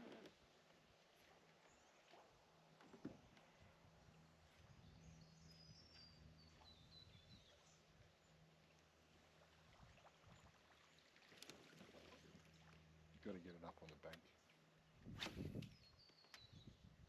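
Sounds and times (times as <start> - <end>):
low steady hum: 0.8 - 15.1.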